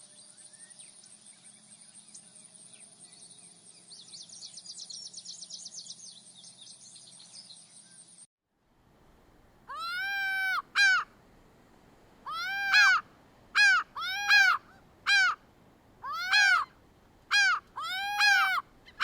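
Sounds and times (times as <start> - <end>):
animal calling: 9.7 - 11.1, 12.3 - 13.0, 13.6 - 15.4, 16.0 - 16.7, 17.3 - 19.0.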